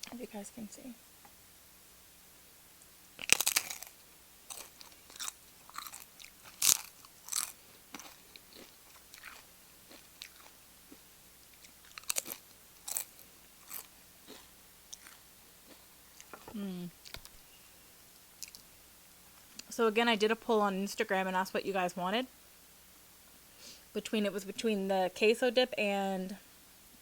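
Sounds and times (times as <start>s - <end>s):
crunching tortilla chips: 3.2s - 16.3s.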